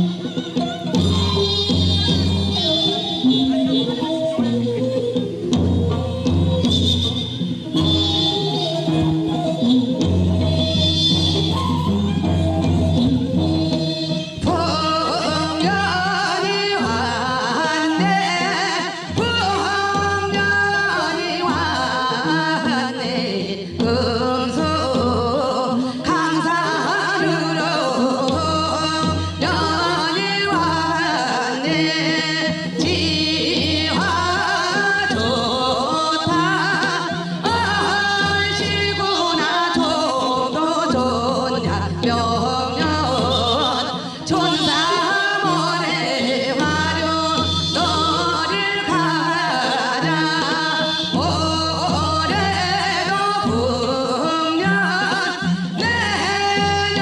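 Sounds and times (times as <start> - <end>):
instrumental accompaniment: 0.0 - 57.0
person singing folk song: 14.3 - 57.0.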